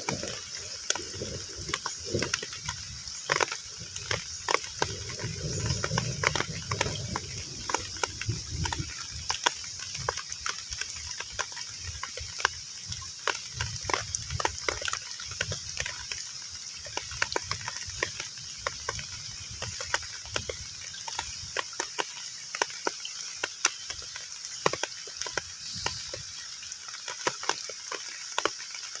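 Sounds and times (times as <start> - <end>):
rain falling on pond: 0.0 - 29.0.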